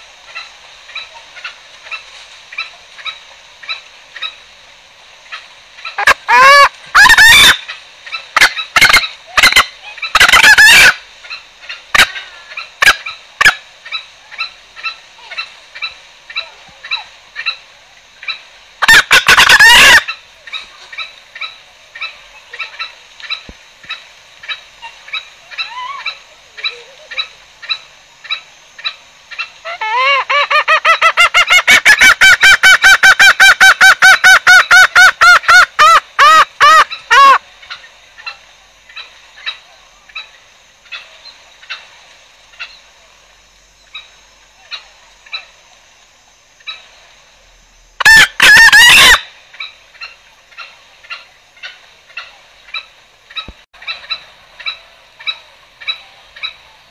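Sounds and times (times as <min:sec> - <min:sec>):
crow call: 0:05.3 - 0:17.6, 0:18.2 - 0:38.4, 0:48.0 - 0:56.7
junglefowl lure calls: 0:05.3 - 0:41.9, 0:48.0 - 0:56.8
fast run of pitched calls: 0:05.8 - 0:17.6, 0:18.2 - 0:23.4, 0:24.5 - 0:38.4, 0:48.0 - 0:56.7.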